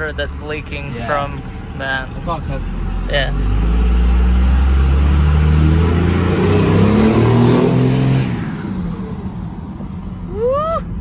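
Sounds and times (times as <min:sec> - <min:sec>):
diesel engine accelerating: 0:00.0 - 0:11.0.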